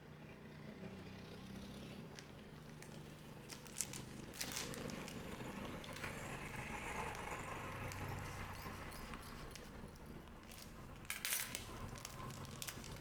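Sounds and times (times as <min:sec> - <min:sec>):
pack wrapper crinkling: 0:02.7 - 0:06.1, 0:07.8 - 0:13.0.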